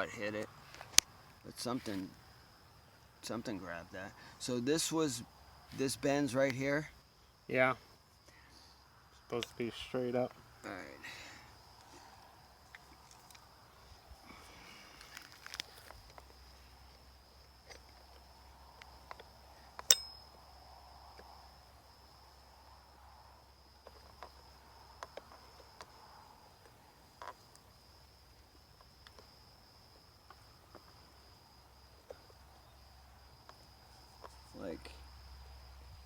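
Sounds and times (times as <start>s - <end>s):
high-pitched insect trill: 0.0s - 36.0s
sharp metallic click: 19.8s - 20.2s.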